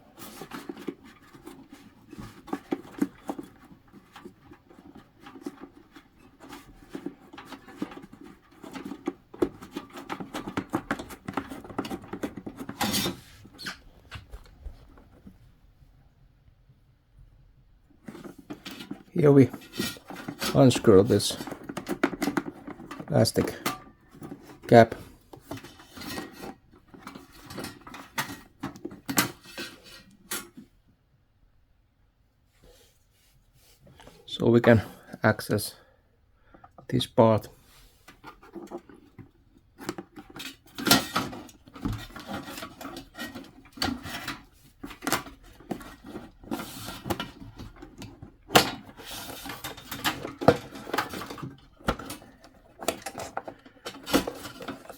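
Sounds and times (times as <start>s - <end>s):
metal parts scraping: 18.2s - 26.5s.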